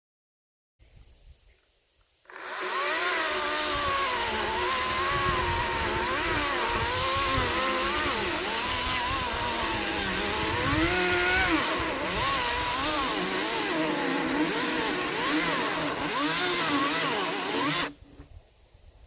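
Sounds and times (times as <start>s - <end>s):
battery chainsaw cutting logs: 2.3s - 18.0s.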